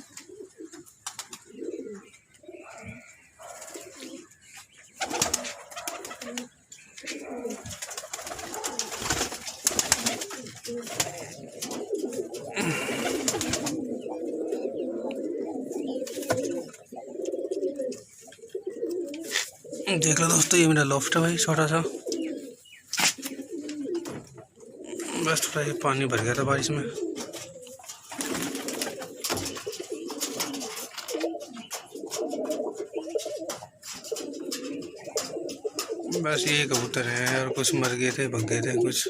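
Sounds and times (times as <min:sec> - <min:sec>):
pigeons cooing: 0:00.0 - 0:39.0
wing flutters and clicks: 0:01.0 - 0:01.6, 0:05.0 - 0:06.5, 0:07.1 - 0:12.4, 0:13.0 - 0:13.8, 0:27.2 - 0:32.6.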